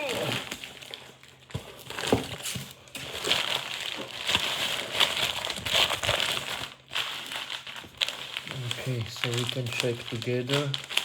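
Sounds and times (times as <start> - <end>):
packaging crinkling and rustling: 0.0 - 11.0
small clicks and crackles: 3.2 - 11.0.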